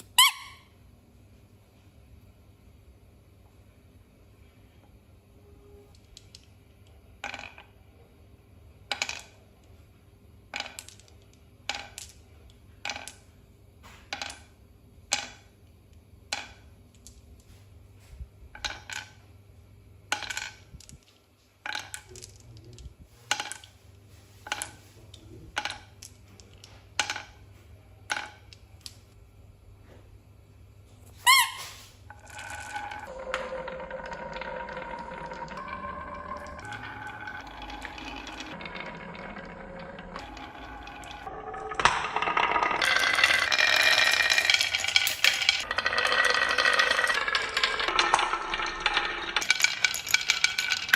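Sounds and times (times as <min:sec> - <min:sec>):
small hard objects clinking: 0:32.1 - 0:50.9.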